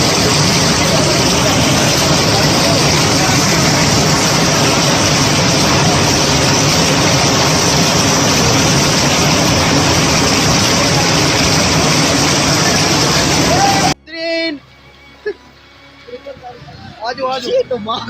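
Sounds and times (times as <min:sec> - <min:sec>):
rushing water: 0:00.0 - 0:14.0.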